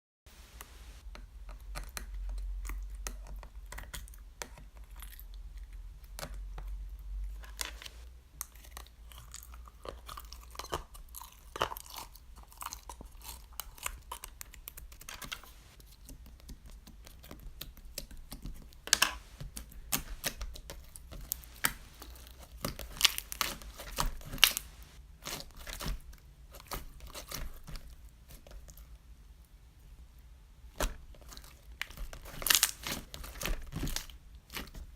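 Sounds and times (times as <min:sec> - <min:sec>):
crinkling and crackling clicks: 0:00.6 - 0:28.9, 0:30.8 - 0:34.9.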